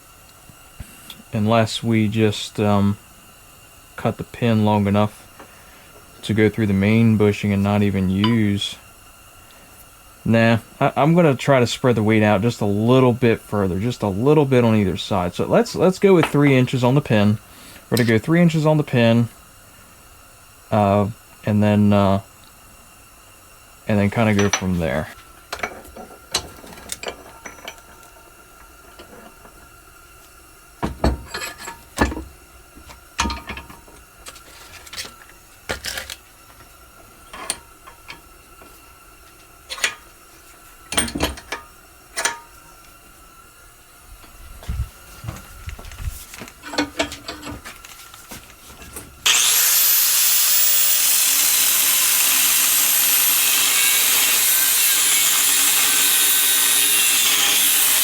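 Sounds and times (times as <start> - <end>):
steel parts and tools clinking: 24.3 - 24.7, 25.5 - 28.2, 31.0 - 32.3, 33.2 - 34.0, 37.2 - 38.3, 39.7 - 40.1, 40.9 - 42.6
power saw cutting steel: 49.2 - 58.0.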